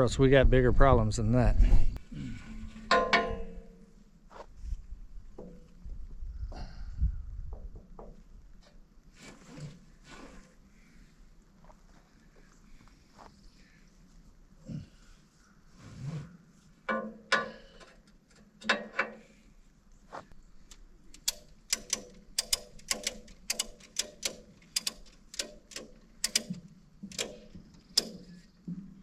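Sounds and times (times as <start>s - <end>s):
knocks and rattles: 2.8s - 3.8s, 16.9s - 19.2s, 21.1s - 29.0s
ratchet strap clicks: 20.7s - 28.3s.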